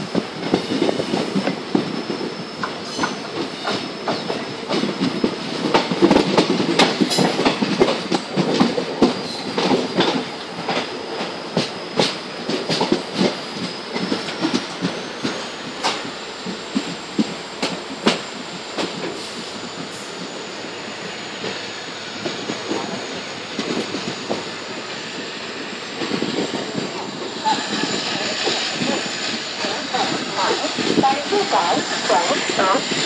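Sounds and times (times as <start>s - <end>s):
train wheels clattering over rail joints: 0.0s - 33.0s
steady high tone: 26.8s - 33.0s.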